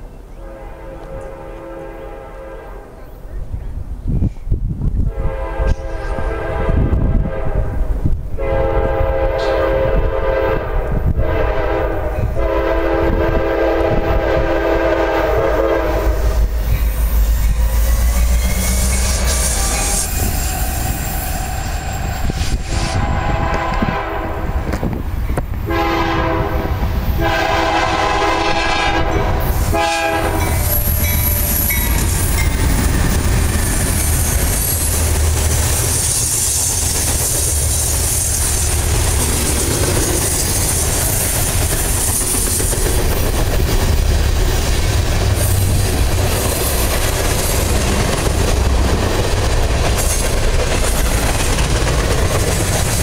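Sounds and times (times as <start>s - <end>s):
locomotive horn blasts: 0.4s - 3.0s, 5.1s - 16.5s, 22.4s - 24.6s, 25.7s - 31.9s
freight train cars clattering: 11.2s - 53.0s.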